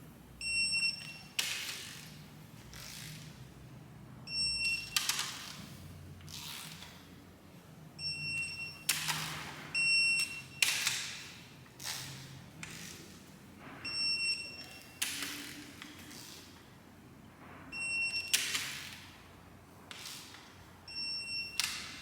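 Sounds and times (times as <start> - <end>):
torque wrench high beep: 20.9 - 21.7.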